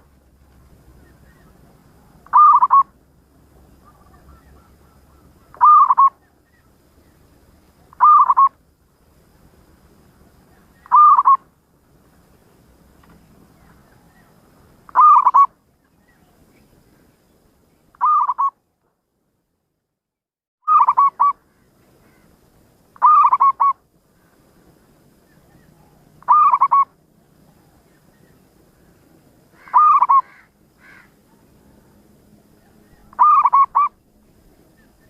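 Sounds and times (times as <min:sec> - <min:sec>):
dove cooing: 0:01.3 - 0:03.0, 0:03.8 - 0:06.3, 0:07.9 - 0:08.5, 0:10.8 - 0:11.4, 0:14.9 - 0:15.5, 0:18.0 - 0:18.5, 0:20.7 - 0:21.4, 0:23.0 - 0:23.8, 0:25.5 - 0:27.8, 0:29.6 - 0:32.0, 0:32.6 - 0:34.0.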